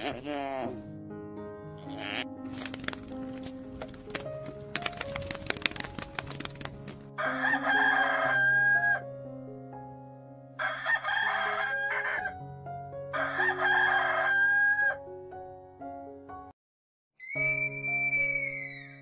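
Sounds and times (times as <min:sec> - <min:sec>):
background music: 0:00.0 - 0:16.5
rooster crowing: 0:07.2 - 0:09.0, 0:10.6 - 0:12.3, 0:13.1 - 0:15.0.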